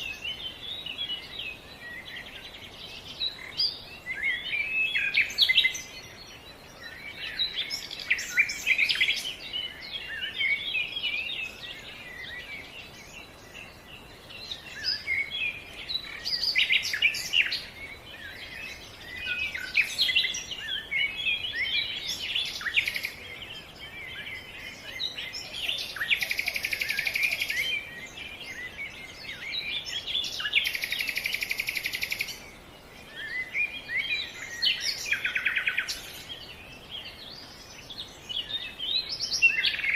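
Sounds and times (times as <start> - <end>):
birds chirping and singing: 0.0 - 39.9
rapid buzzy bird trills: 25.3 - 28.1, 30.0 - 32.5.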